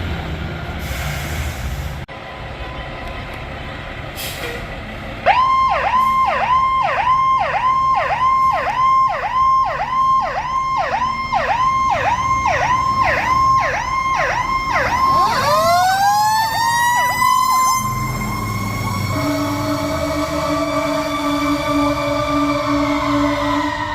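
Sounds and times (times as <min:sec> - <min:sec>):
fire engine siren yelp: 0:05.2 - 0:23.9
siren steady rising tone: 0:05.2 - 0:23.9.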